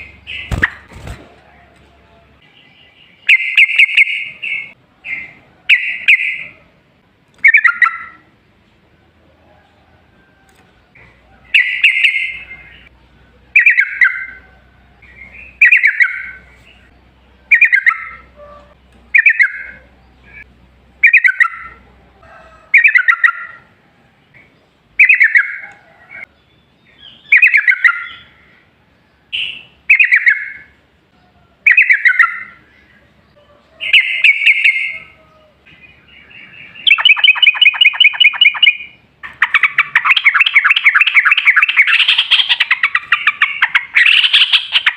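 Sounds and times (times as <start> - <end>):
bird chattering song: 0.0 - 1.1, 2.4 - 6.6, 7.4 - 8.3, 10.9 - 21.8, 22.8 - 23.7, 24.3 - 28.7, 29.3 - 44.9
fast rolling bird trill: 0.0 - 1.7, 7.4 - 8.3, 11.4 - 12.9, 13.5 - 23.7, 25.0 - 26.3, 29.3 - 30.8, 31.6 - 32.7, 35.9 - 44.9.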